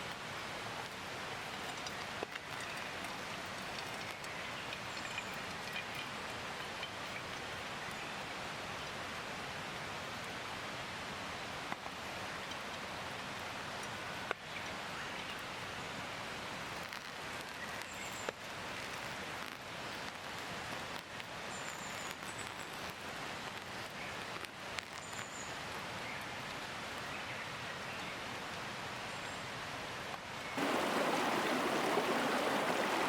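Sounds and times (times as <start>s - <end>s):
rain falling: 0.0s - 28.8s, 29.6s - 33.0s
sharper raindrops hitting nearby: 16.7s - 26.6s, 30.6s - 33.0s.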